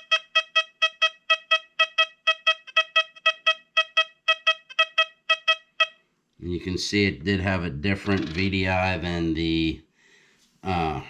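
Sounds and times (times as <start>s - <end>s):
metal detector beeps: 0.0s - 6.0s.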